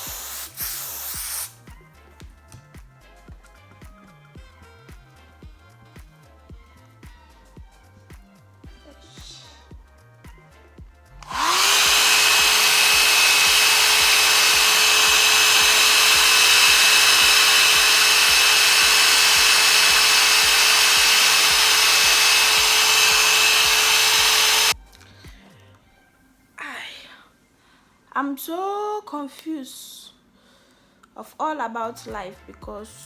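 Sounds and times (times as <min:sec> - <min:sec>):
hair dryer whining: 0:00.0 - 0:01.6, 0:11.2 - 0:24.8.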